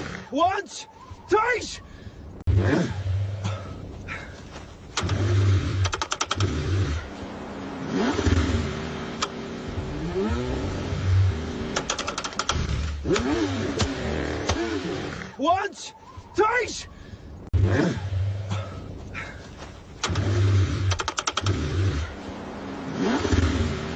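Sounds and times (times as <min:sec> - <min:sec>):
car engine cranking: 0:04.8 - 0:07.2, 0:07.8 - 0:15.4, 0:19.8 - 0:22.2, 0:22.9 - 0:23.9
rapid clicking: 0:04.9 - 0:06.6, 0:11.7 - 0:13.9, 0:20.0 - 0:21.6.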